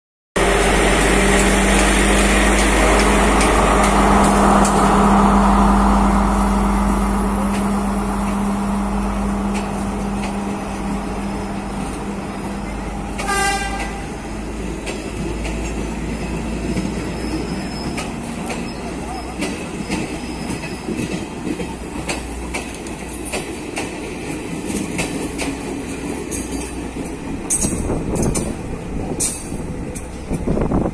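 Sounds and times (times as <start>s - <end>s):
diesel engine drone: 0.4s - 15.1s
train carriages rolling by: 0.4s - 30.9s
high train horn toot: 13.1s - 14.3s.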